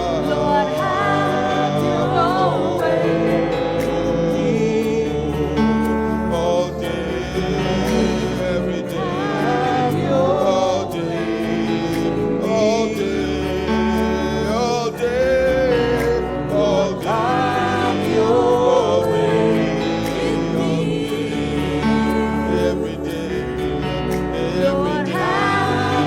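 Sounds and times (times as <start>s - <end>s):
person singing: 0.0s - 26.0s
sustained keyboard chords: 0.0s - 26.0s.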